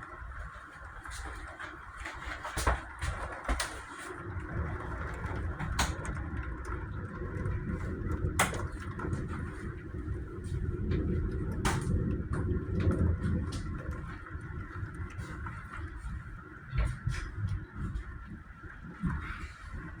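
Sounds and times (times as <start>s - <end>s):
thunder rumbling: 4.2s - 20.0s.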